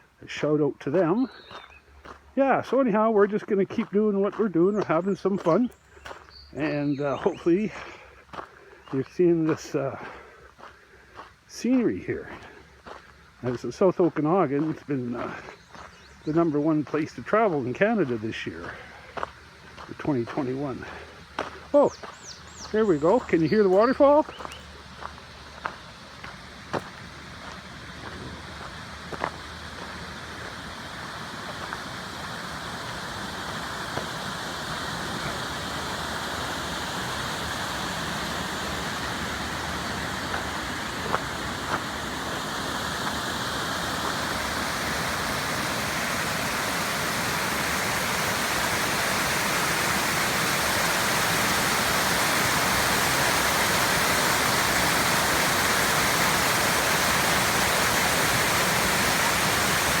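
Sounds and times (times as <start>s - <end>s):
waterfall roaring: 16.4s - 60.0s.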